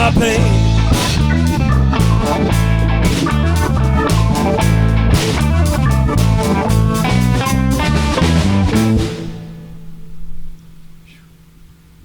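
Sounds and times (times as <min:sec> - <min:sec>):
rock band playing instrumental: 0:00.0 - 0:10.0.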